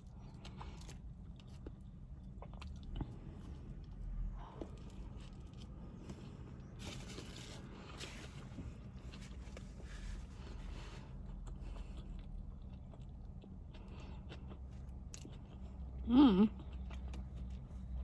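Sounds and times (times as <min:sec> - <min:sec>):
low steady hum: 0:00.0 - 0:18.0
person chewing and biting food: 0:00.1 - 0:07.2, 0:08.6 - 0:18.0.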